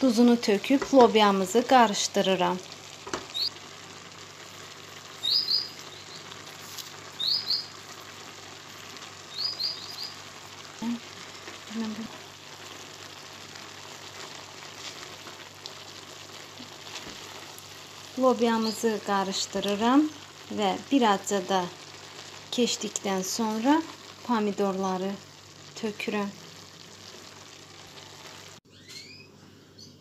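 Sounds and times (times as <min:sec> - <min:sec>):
green beans sizzling in a pot: 0:00.0 - 0:28.6
small bird chirping: 0:03.2 - 0:03.6, 0:05.1 - 0:06.4, 0:07.1 - 0:07.8, 0:09.2 - 0:10.3, 0:18.4 - 0:19.0, 0:28.7 - 0:30.0.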